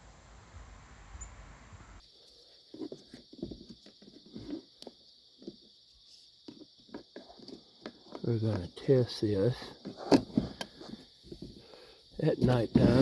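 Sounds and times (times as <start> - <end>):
steady high-pitched hiss: 0.0 - 13.0.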